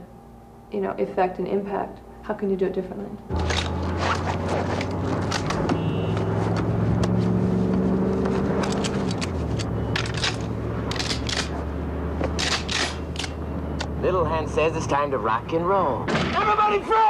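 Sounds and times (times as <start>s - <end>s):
car engine idling: 3.3s - 16.0s
metallic clicks of guns loading: 8.6s - 11.6s, 12.3s - 13.4s.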